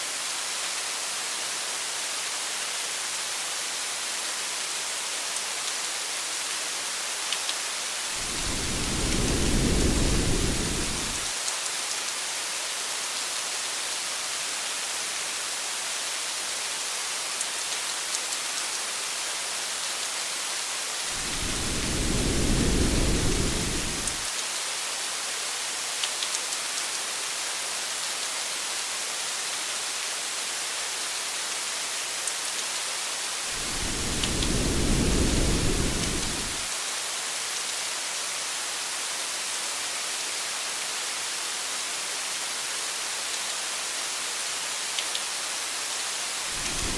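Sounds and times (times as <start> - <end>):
heavy rain hissing: 8.0 - 11.4, 21.0 - 24.3, 33.3 - 36.8, 46.3 - 46.9
low rolls of thunder: 8.2 - 11.3, 21.1 - 24.3, 33.5 - 36.7, 46.5 - 46.9.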